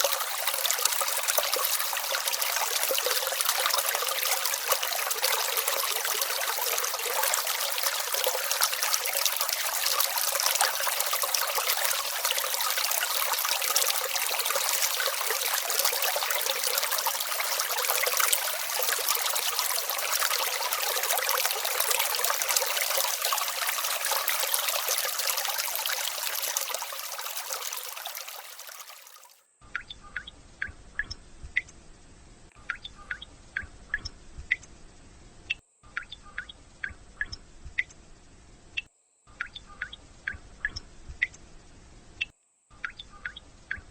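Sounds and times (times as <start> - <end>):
water drops plinking: 0.0 - 28.9, 32.6 - 34.6, 35.9 - 37.4, 39.4 - 41.4, 42.8 - 43.9
brook trickling and splashing: 0.0 - 29.4.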